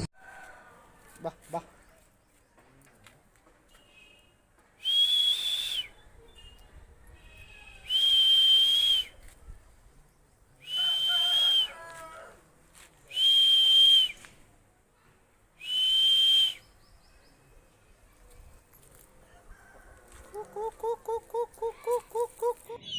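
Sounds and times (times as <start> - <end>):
shrill whistle blasts: 4.8 - 6.0, 7.8 - 9.2, 10.6 - 11.8, 13.1 - 14.2, 15.6 - 16.7.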